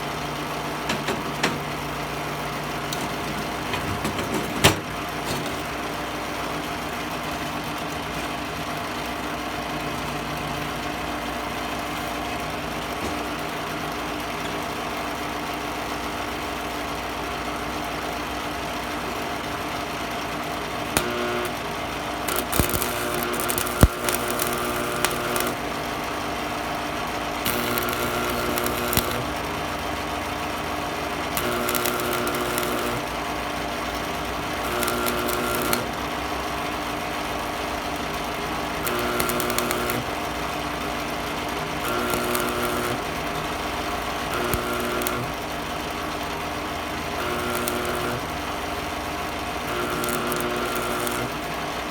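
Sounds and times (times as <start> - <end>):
welder humming: 20.8 - 51.8
welding arc crackle: 20.8 - 51.9.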